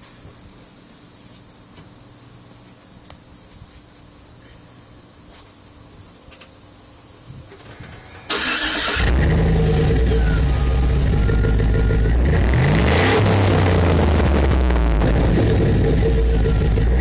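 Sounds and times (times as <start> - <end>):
truck engine cranking and running: 7.6 - 17.0.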